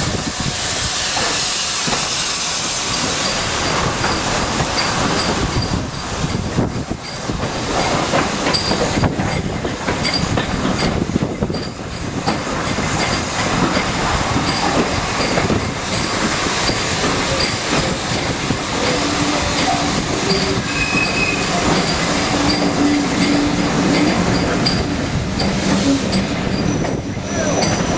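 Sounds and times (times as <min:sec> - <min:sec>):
train wheels on rails: 0:00.0 - 0:27.9
wheel squeal: 0:18.8 - 0:27.9.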